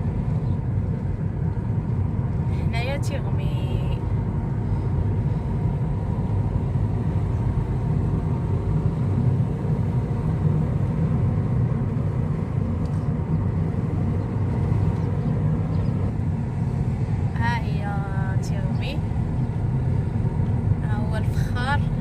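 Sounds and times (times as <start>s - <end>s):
car engine and tyres rumble: 0.0s - 22.0s.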